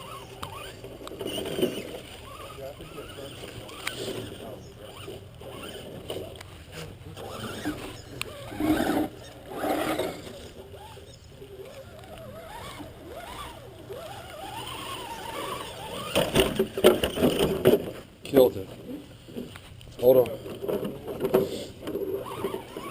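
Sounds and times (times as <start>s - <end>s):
electric motor whining: 0.0s - 17.6s, 21.8s - 22.9s.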